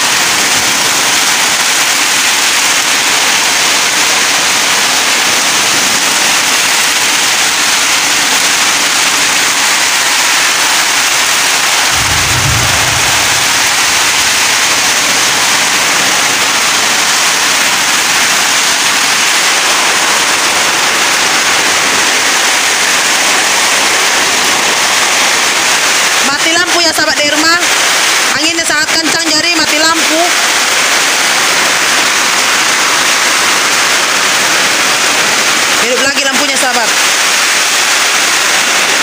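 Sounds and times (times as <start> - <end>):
heavy rain pouring: 0.0 - 39.0
strong wind: 11.7 - 18.6
low rumble: 11.9 - 15.6.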